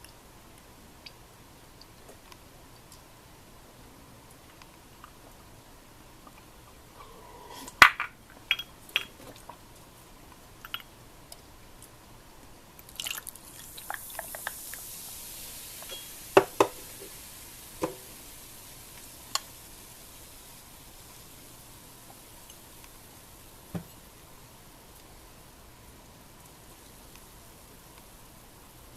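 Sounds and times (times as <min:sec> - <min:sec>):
soft hiss: 0:00.0 - 0:28.9
dishes and utensils clicking: 0:10.6 - 0:10.9.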